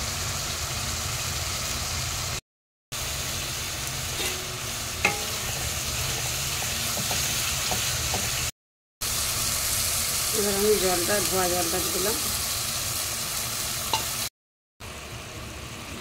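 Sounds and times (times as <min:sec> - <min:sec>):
spice paste sizzling in oil: 0:00.0 - 0:02.4, 0:03.0 - 0:16.0
spatula tapping and scraping pan: 0:04.2 - 0:08.4.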